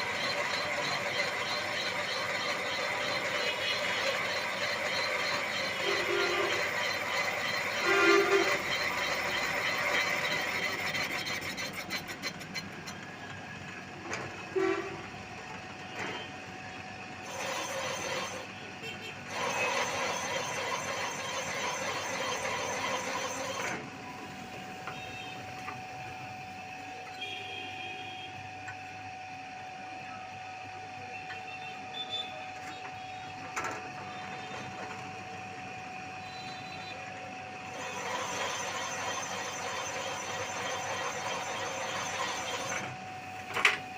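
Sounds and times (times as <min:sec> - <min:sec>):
metal squealing: 0:00.0 - 0:13.0
machine whine: 0:00.0 - 0:43.9.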